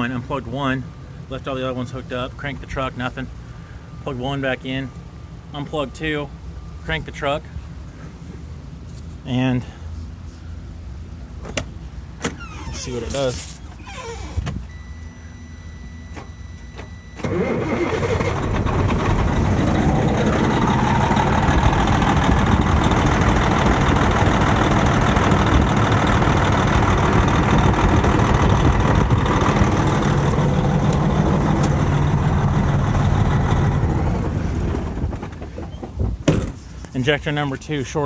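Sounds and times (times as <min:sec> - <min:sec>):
diesel engine cranking and running: 0:12.0 - 0:15.0, 0:16.1 - 0:36.9.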